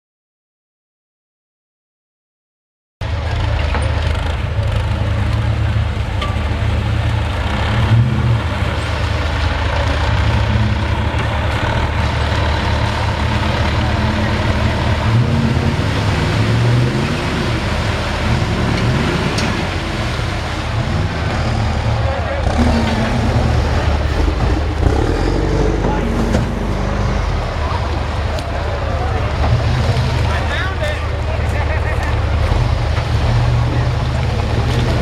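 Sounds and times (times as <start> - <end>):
truck engine revving: 3.0 - 35.0.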